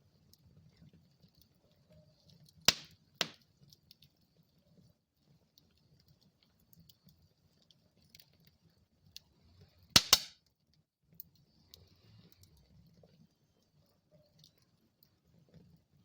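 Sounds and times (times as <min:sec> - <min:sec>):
wood fire crackling: 0:00.0 - 0:16.0
loud sharp fire pops: 0:02.7 - 0:03.4, 0:10.0 - 0:10.3.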